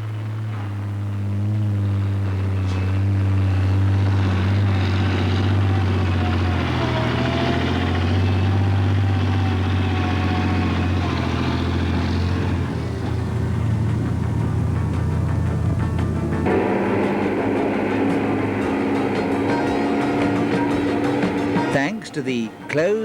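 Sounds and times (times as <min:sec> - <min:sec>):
diesel truck engine droning: 0:00.0 - 0:23.0
faint gliding whine: 0:00.0 - 0:23.0.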